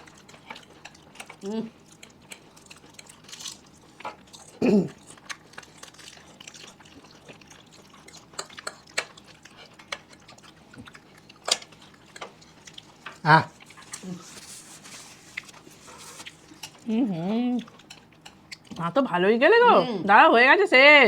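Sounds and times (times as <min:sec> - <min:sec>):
person chewing: 0:00.0 - 0:18.8
cutlery clicking against bowl: 0:08.4 - 0:09.2.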